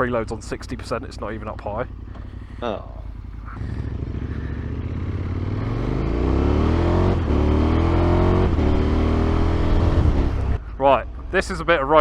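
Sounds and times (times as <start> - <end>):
motorcycle accelerating: 0.0 - 12.0.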